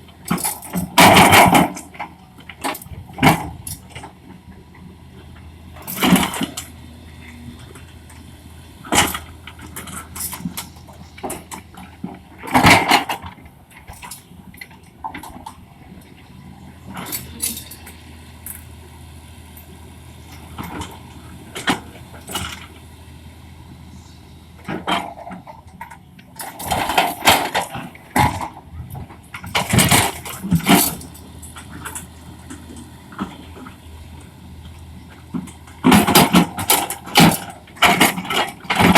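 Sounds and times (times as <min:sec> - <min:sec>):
excavator diesel engine: 0:00.0 - 0:38.9
machine cracks and clanks: 0:24.8 - 0:28.6, 0:29.4 - 0:32.1, 0:35.4 - 0:38.9.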